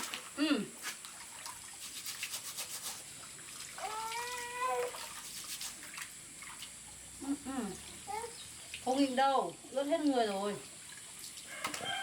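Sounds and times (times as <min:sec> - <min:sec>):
wet rubbing: 0:00.0 - 0:06.8
light water splashing: 0:00.0 - 0:12.0.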